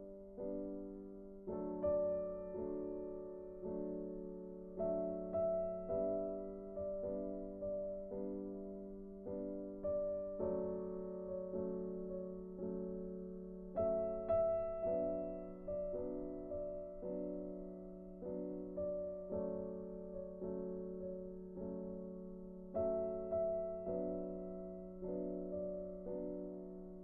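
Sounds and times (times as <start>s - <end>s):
soft piano music: 0.0s - 27.0s.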